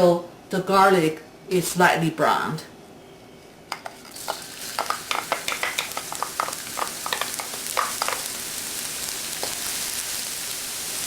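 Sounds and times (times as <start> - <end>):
garlic sizzling in oil: 4.0 - 11.0.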